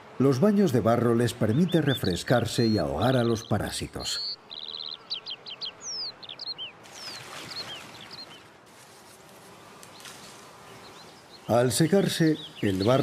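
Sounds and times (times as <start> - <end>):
bird buzzy trill: 1.5 - 8.4.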